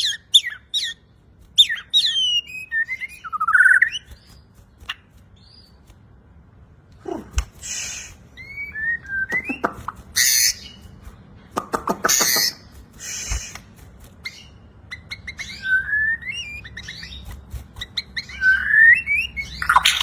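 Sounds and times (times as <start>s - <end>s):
bird singing with trills and whistles: 0.0s - 5.8s, 7.7s - 11.0s, 14.2s - 20.0s.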